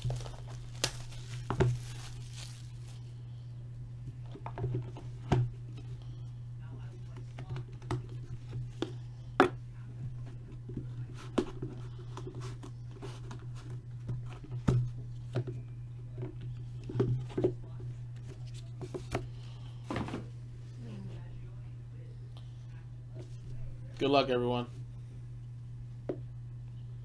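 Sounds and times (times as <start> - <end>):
cardboard and wrapping handling: 0.0 - 3.1
low electrical hum: 0.0 - 27.0.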